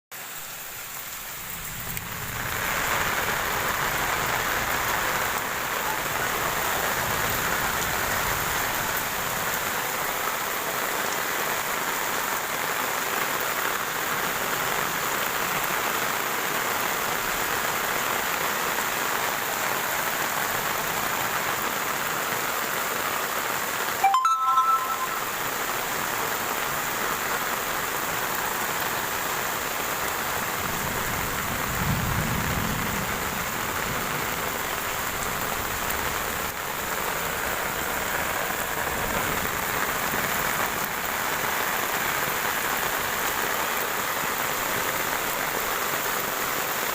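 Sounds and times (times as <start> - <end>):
heavy rain falling: 0.2 - 46.9
short pitched sound: 24.0 - 25.6.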